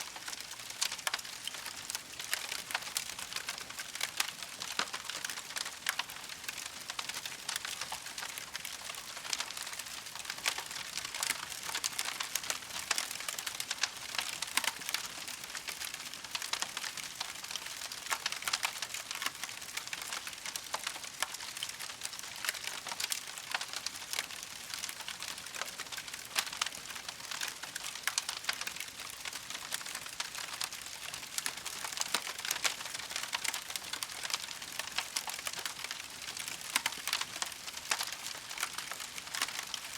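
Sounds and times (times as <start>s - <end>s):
campfire crackling: 0.2s - 39.9s.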